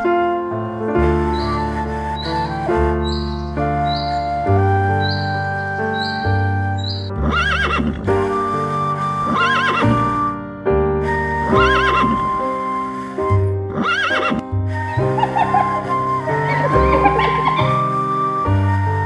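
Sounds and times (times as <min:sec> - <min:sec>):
background music: 0:00.0 - 0:19.0
animal call with wavering pitch: 0:01.0 - 0:10.2, 0:11.2 - 0:19.0.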